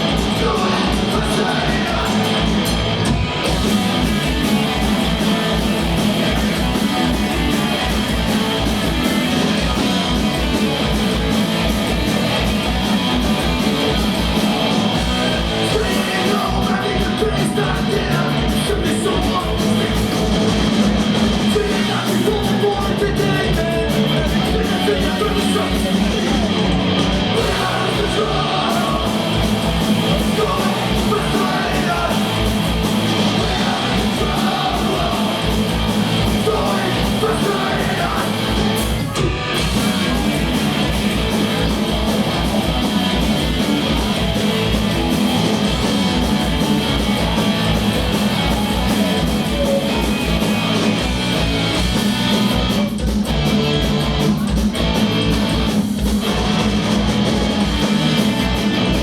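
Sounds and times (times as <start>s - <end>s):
shouted vocals: 0.0s - 2.6s, 15.2s - 20.1s, 21.4s - 40.9s, 45.8s - 50.9s
bass guitar: 0.0s - 59.0s
distorted electric guitars: 0.0s - 59.0s
fast kick-drum beat: 0.0s - 59.0s.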